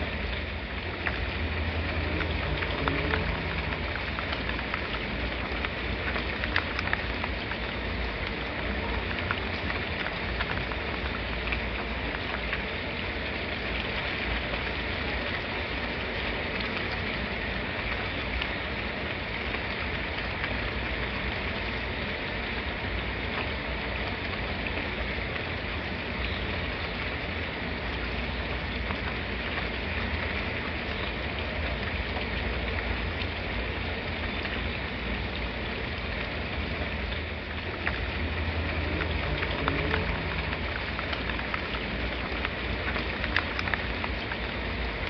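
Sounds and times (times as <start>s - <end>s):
raindrops striking sharply: 0.0s - 45.0s
steady rain falling: 0.0s - 45.0s
low rumble: 36.6s - 42.9s.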